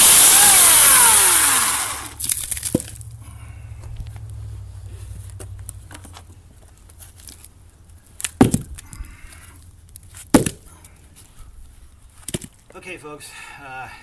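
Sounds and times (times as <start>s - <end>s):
low hum: 1.5s - 8.0s
wooden knocks of logs: 2.2s - 3.1s, 8.2s - 9.0s, 10.2s - 10.7s, 12.2s - 12.6s.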